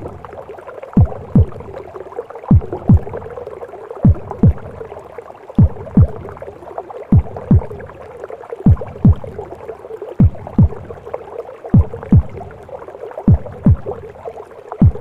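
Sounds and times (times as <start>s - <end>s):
heartbeat thumps: 0.0s - 0.4s, 1.0s - 1.8s, 2.5s - 3.4s, 4.0s - 4.9s, 5.6s - 6.4s, 7.1s - 8.0s, 8.6s - 9.5s, 10.2s - 11.1s, 11.7s - 12.6s, 13.3s - 14.1s, 14.8s - 15.0s
gurgling whooshing womb sound: 0.0s - 15.0s.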